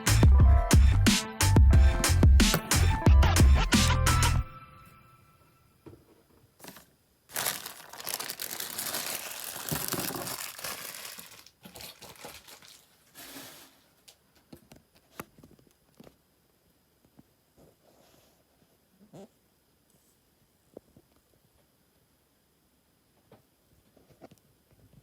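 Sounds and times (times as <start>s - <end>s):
packaging crinkling: 6.6s - 14.2s.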